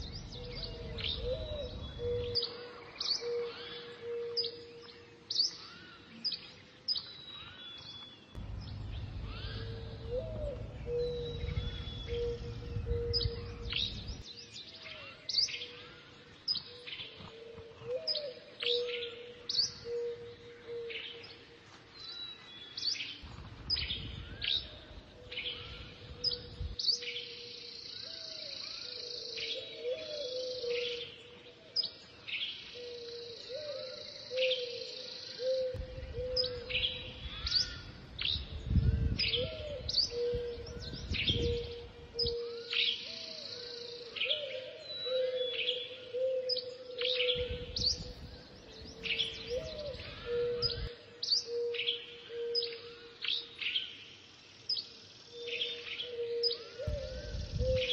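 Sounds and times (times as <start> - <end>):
wind gusts: 0.0 - 3.1, 8.3 - 14.4, 23.0 - 27.0, 35.7 - 42.5, 47.0 - 51.2, 56.8 - 57.9
low warbling bird call: 0.0 - 4.8, 8.4 - 15.8, 32.8 - 53.6, 55.3 - 57.9
birds chirping: 0.0 - 57.9.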